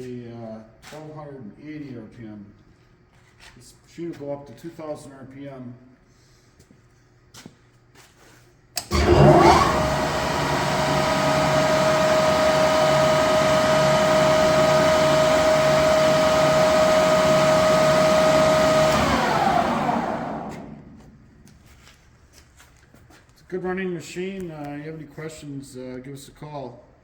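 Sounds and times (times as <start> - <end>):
lathe switch clicks: 8.8 - 21.1
lathe gear whine: 8.8 - 21.3.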